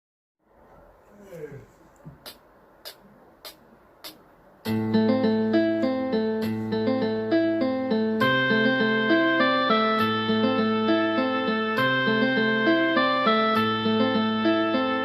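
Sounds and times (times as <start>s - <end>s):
keyboard and guitar chords: 4.6s - 15.0s.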